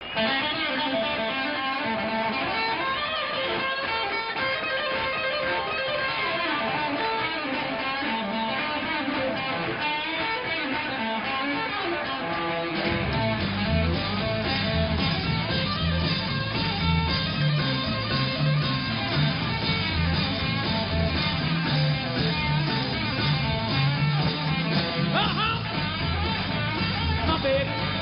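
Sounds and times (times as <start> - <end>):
fast electric guitar lines: 0.0 - 28.0
live rock music: 0.0 - 28.0.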